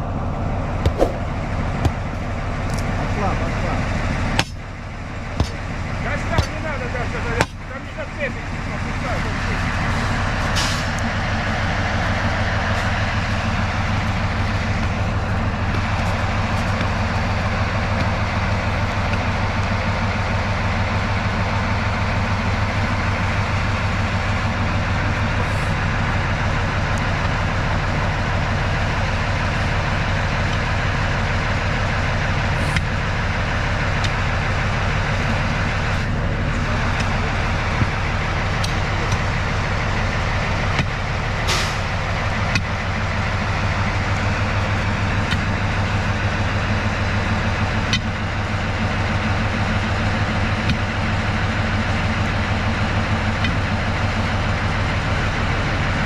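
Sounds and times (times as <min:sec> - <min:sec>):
diesel locomotive engine running: 0:00.0 - 0:56.0.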